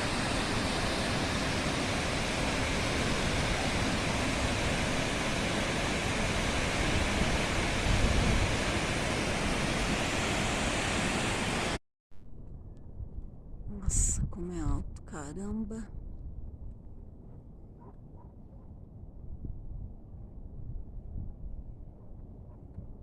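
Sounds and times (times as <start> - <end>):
waterfall rushing: 0.0 - 11.8.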